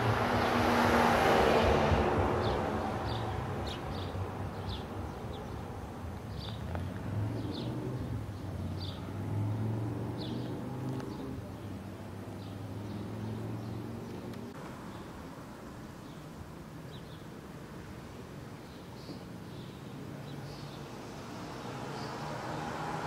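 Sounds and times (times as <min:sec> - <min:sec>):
street traffic hum: 0:00.0 - 0:23.0.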